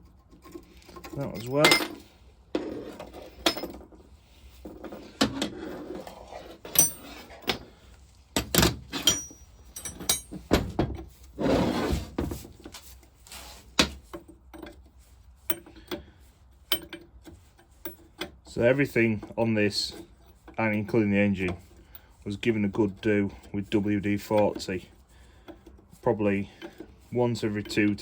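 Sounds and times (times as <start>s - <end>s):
metal parts and tools clinking: 0.3s - 3.9s, 4.8s - 7.7s, 8.4s - 10.8s, 16.6s - 22.1s.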